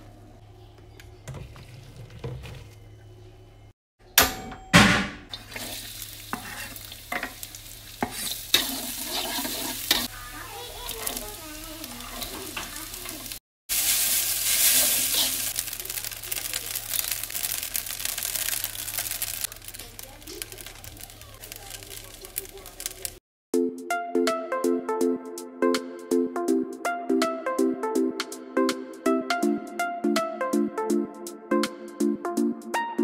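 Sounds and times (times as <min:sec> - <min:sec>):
spatula scraping a wok: 0:05.3 - 0:10.2, 0:12.0 - 0:15.7
food sizzling in hot oil: 0:05.3 - 0:23.2.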